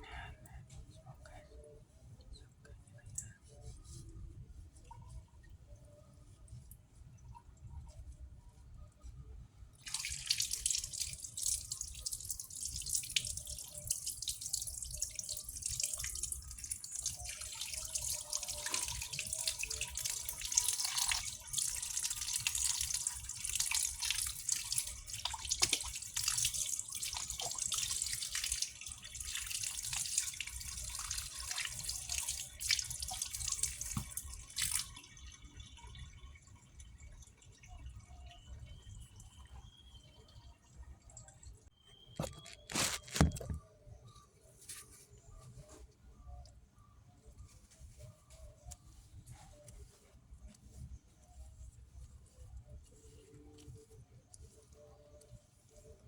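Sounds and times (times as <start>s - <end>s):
water running from tap: 9.8s - 36.2s.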